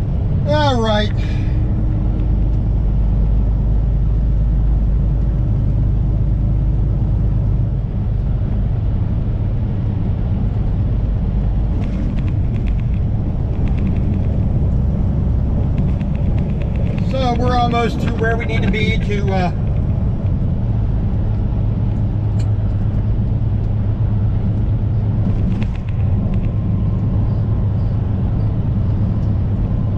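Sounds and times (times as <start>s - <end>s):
road noise: 0.0s - 29.9s
truck engine rumble: 0.0s - 29.9s
rapid clicks: 11.7s - 14.8s, 15.6s - 20.4s.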